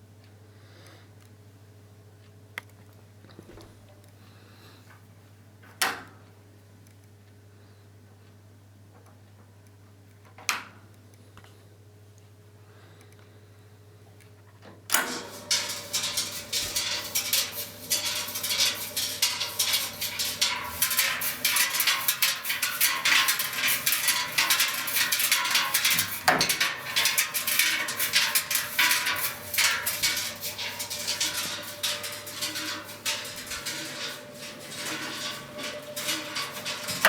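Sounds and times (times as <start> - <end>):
metal tools clattering: 15.1 - 37.0.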